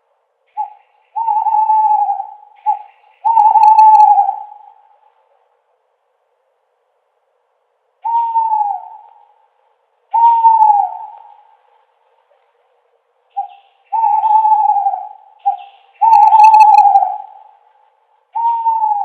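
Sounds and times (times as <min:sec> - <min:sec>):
owl hooting: 0:00.5 - 0:05.2, 0:08.0 - 0:12.5, 0:13.3 - 0:19.0.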